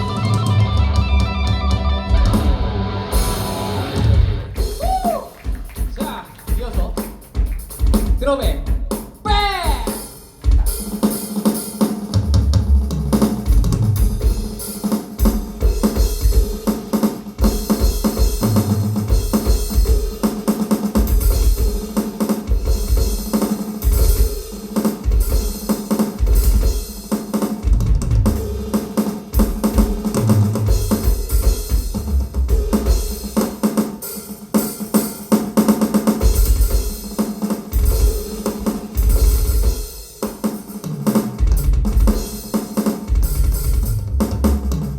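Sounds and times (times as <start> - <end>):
heavy bass drum hits: 0.0 - 5.1, 12.2 - 14.6, 27.7 - 33.3
drum kit beats and fills: 0.0 - 44.9.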